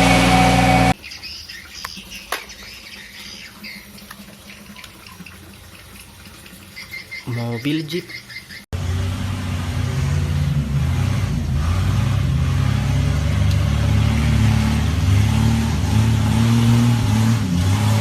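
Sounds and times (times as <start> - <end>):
vehicle engine droning: 0.0 - 1.0, 8.7 - 18.0.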